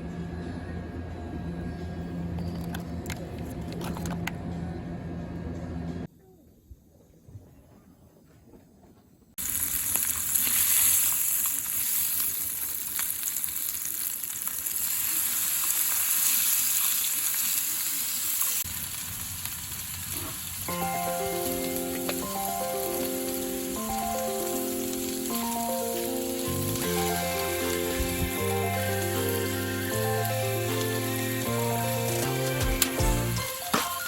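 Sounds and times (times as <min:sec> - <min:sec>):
food sizzling in a pan: 0:09.4 - 0:34.0
background music: 0:20.7 - 0:34.0.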